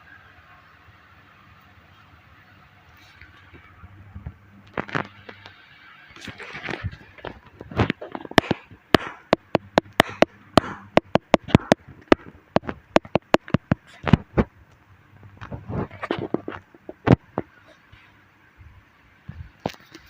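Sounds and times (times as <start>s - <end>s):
rapid sharp clicks and knocks: 6.2s - 14.5s.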